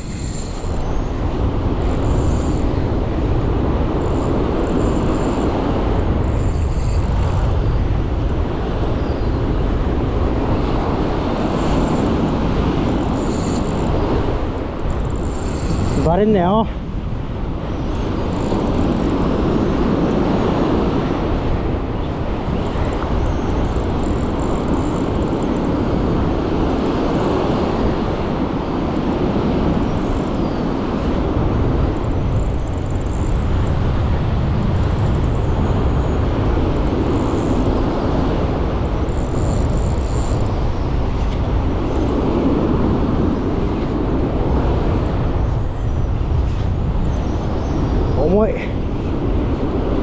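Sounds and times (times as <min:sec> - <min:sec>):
surf washing on beach: 0:00.0 - 0:50.0
wind buffeting microphone: 0:00.0 - 0:50.0.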